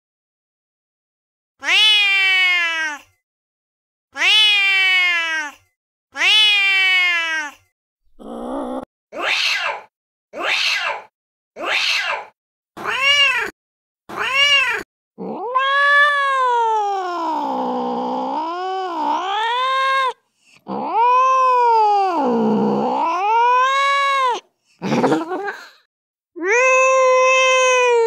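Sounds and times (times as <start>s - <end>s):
angry cat yowling: 1.6s - 3.0s, 4.2s - 5.5s, 6.2s - 7.6s, 8.2s - 13.5s, 14.1s - 25.3s, 26.4s - 28.0s.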